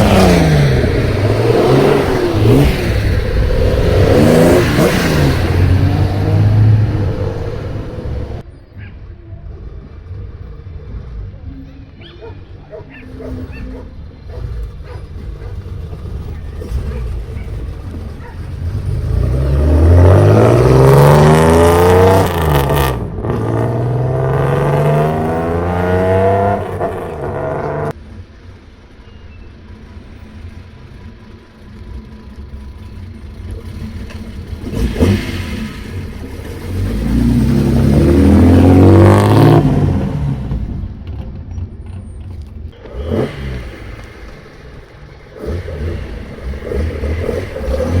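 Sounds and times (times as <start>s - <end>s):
car exhaust revving hard: 0.0s - 8.4s, 14.3s - 28.0s, 33.6s - 40.8s, 42.8s - 48.0s.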